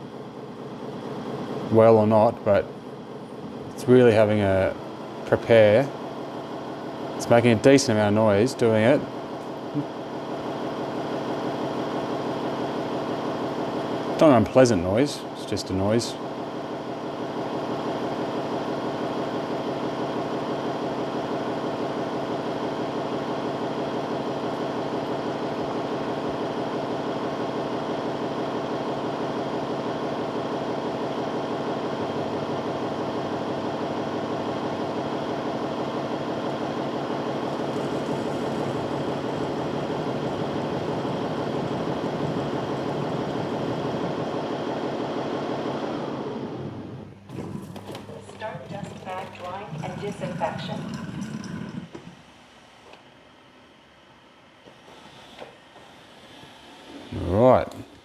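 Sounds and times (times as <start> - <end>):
robot vacuum dock motor hum: 32.1 - 53.0.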